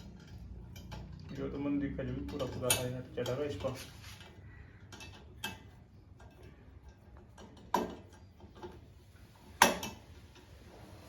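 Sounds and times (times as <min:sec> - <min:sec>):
metal tools clinking: 0:00.0 - 0:08.7.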